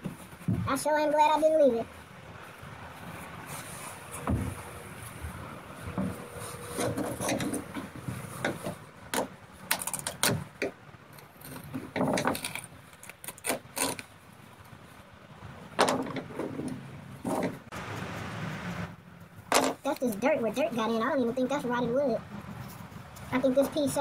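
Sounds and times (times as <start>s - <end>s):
wood and debris knocking and scraping: 4.2s - 4.6s, 5.2s - 10.8s, 11.4s - 12.8s, 15.8s - 17.7s, 19.5s - 19.9s.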